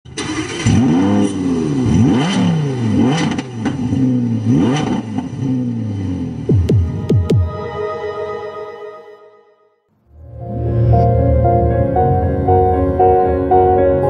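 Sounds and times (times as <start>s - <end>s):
car engine revving: 0.2s - 7.2s.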